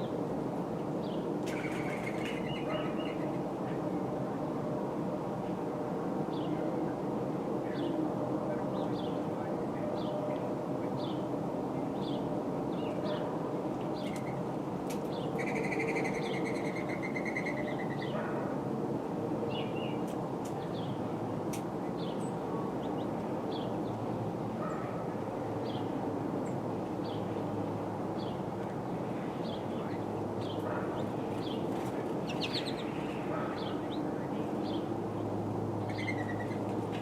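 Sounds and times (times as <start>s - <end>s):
small birds chirping: 29.4s - 34.9s, 35.8s - 36.7s.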